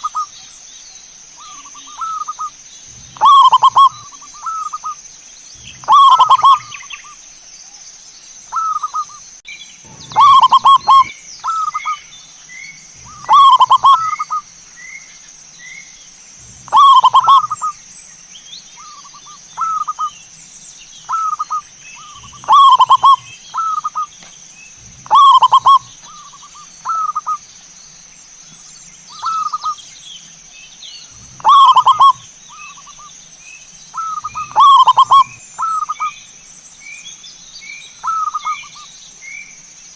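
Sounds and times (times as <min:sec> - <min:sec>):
dove cooing: 0:01.4 - 0:04.9, 0:05.6 - 0:06.8, 0:09.8 - 0:12.0, 0:13.0 - 0:14.4, 0:16.4 - 0:17.8, 0:18.8 - 0:20.1, 0:21.1 - 0:24.1, 0:24.8 - 0:27.4, 0:31.1 - 0:32.7, 0:34.0 - 0:36.1.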